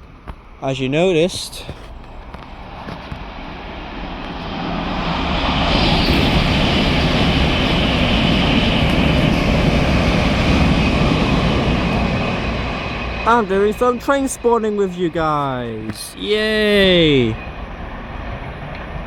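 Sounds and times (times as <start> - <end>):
train wheels and motors rushing: 0.0 - 19.0
high whine falling in pitch: 5.2 - 17.5.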